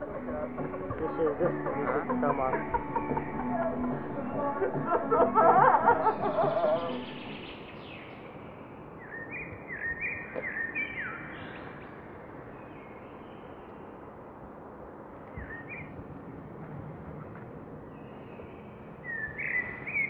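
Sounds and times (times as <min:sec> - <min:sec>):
small birds chirping: 0:06.0 - 0:14.2, 0:15.3 - 0:16.0, 0:17.8 - 0:20.0.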